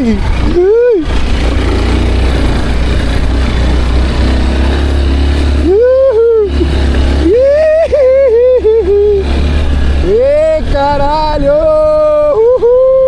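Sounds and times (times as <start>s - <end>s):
man calling out: 10.0s - 13.0s.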